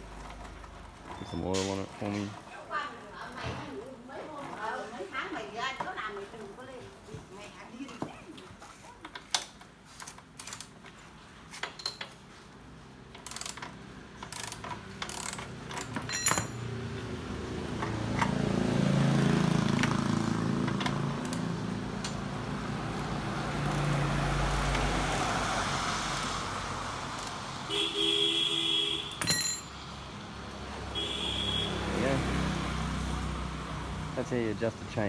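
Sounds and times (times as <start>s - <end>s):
hand tools clinking on metal: 1.0s - 4.0s, 14.2s - 16.8s, 29.2s - 29.8s.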